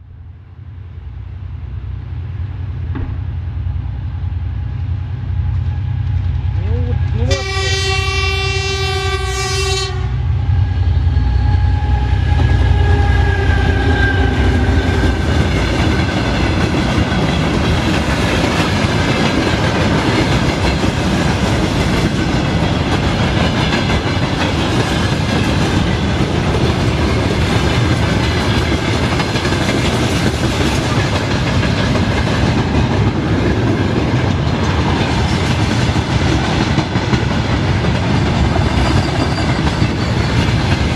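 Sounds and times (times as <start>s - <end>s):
train horn blast: 6.8s - 15.0s
train wheels clacking on rails: 13.0s - 40.9s.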